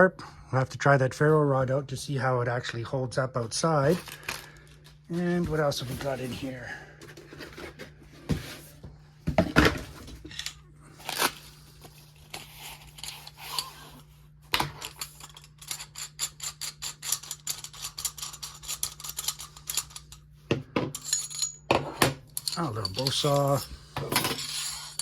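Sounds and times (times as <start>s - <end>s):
faint steady hum: 0.0s - 25.0s
knocks and rustles of packaging: 7.0s - 10.3s.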